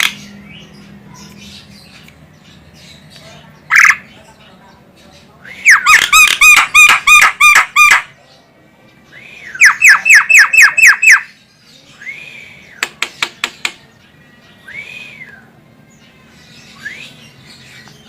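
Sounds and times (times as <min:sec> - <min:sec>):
myna bird harsh calls: 0:02.9 - 0:04.4, 0:05.5 - 0:08.2, 0:09.4 - 0:13.8
bird sharp clicks: 0:12.8 - 0:13.8.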